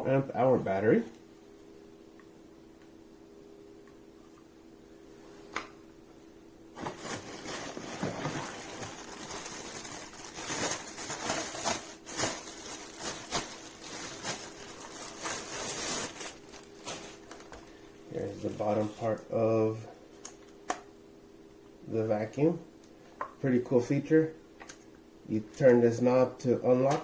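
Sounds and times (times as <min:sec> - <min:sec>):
faint steady hum: 0:00.0 - 0:27.0
packaging rustling and crinkling: 0:06.8 - 0:19.3.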